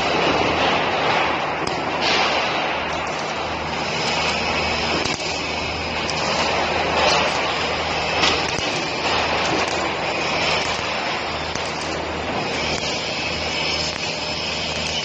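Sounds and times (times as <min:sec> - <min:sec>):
welding machine hiss and hum: 0:00.0 - 0:15.0
sharp machine clicks: 0:06.1 - 0:15.0.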